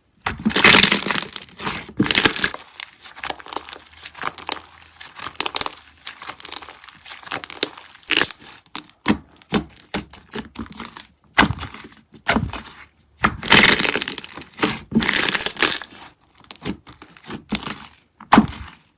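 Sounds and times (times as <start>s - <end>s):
slime crackling and popping: 0.2s - 18.9s.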